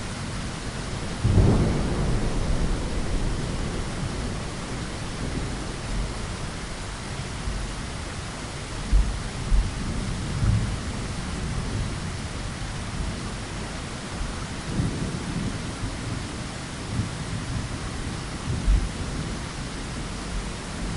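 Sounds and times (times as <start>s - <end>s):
steady rain falling: 0.0s - 20.9s
thunder rumbling: 1.1s - 7.6s.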